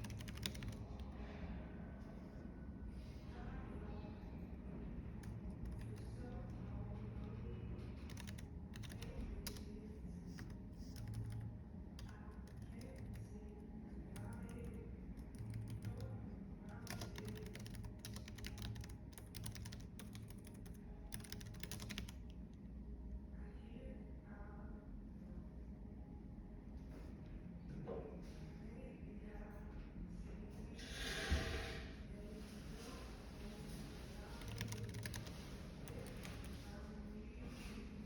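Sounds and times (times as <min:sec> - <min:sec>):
computer keyboard typing: 0:00.0 - 0:01.1, 0:05.2 - 0:09.7, 0:10.3 - 0:13.3, 0:14.1 - 0:22.3, 0:34.2 - 0:36.6
low background hum: 0:00.0 - 0:38.0.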